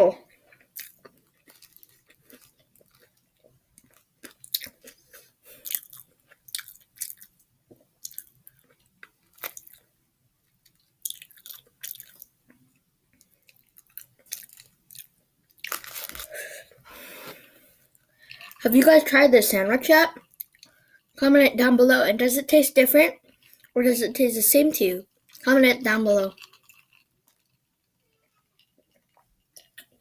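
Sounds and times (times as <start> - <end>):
crisp chewing crunches: 0.3 - 9.9, 10.6 - 16.6, 20.1 - 21.1, 26.3 - 30.0.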